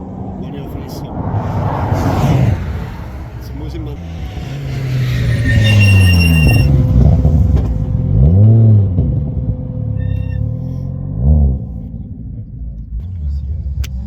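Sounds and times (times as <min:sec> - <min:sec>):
race car engine slowing: 0:00.0 - 0:10.6
engine rev blip: 0:02.2 - 0:09.1
high whistle: 0:04.2 - 0:06.9, 0:10.0 - 0:10.4.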